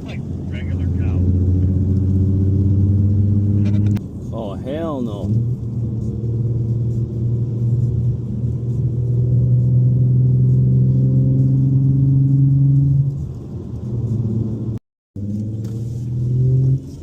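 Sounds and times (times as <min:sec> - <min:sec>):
car engine accelerating: 0:00.0 - 0:04.1, 0:05.2 - 0:17.0.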